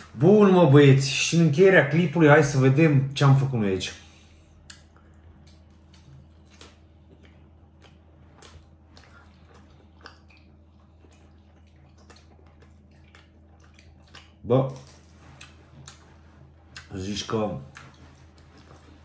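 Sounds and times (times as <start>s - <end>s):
steady low hum: 0.0s - 19.0s
faint chewing: 4.0s - 19.0s.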